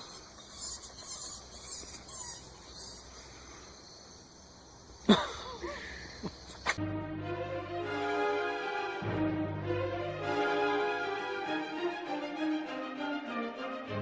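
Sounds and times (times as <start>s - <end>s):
young animal crying: 0.0s - 3.2s
young animal squeaking: 0.0s - 3.3s
small chirps: 0.0s - 6.8s.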